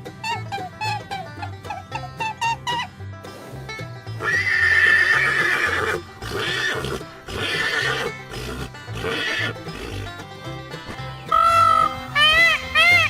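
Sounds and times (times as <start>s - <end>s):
background music: 0.0s - 13.0s
horse neighing: 4.2s - 10.2s, 11.3s - 12.2s.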